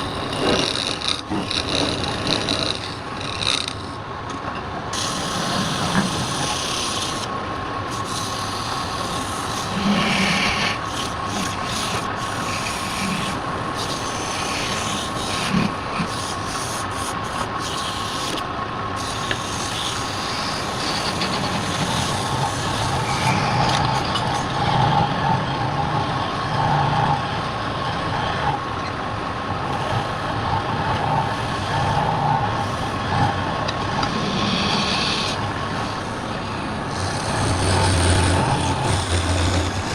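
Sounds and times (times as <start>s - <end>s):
tool scraping spinning wood: 0.0s - 4.0s, 7.9s - 18.4s, 19.0s - 25.7s, 30.9s - 39.9s
wood lathe whining: 7.9s - 18.4s, 19.0s - 25.4s, 33.7s - 39.9s.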